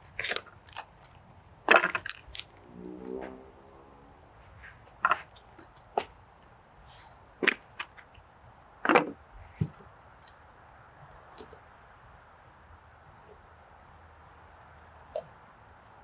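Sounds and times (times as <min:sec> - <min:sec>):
sharp cracks and crunches: 0:00.0 - 0:02.6.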